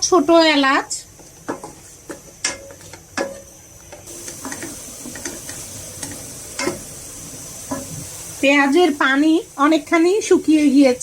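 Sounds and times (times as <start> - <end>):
paste sizzling: 4.1 - 11.0.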